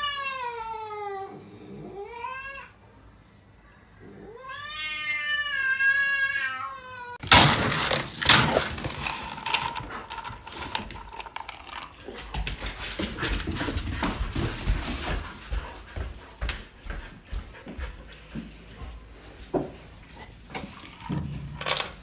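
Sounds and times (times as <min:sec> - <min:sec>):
cat meowing: 0:04.2 - 0:07.2
loud rustling and clattering: 0:07.2 - 0:15.8.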